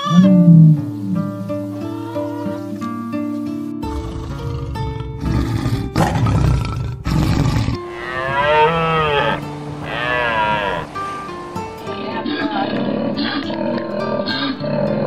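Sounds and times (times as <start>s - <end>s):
deer calls: 0.0s - 5.3s, 7.8s - 15.0s
tiger growling: 0.2s - 15.0s
plucked background music: 7.8s - 15.0s.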